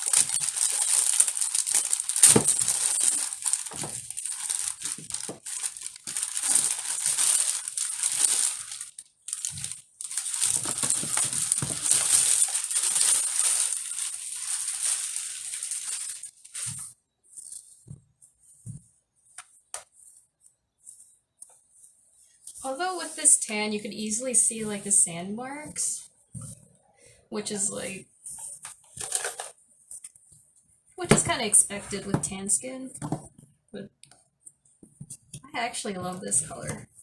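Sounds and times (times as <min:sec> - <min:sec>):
packing material crinkling: 0:00.0 - 0:17.9.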